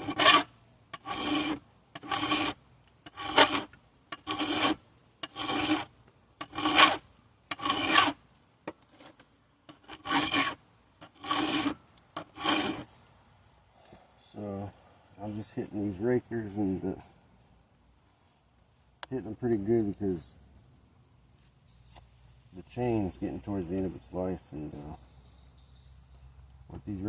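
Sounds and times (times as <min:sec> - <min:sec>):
hand file rasping on chain: 0:00.0 - 0:08.2, 0:09.7 - 0:12.9.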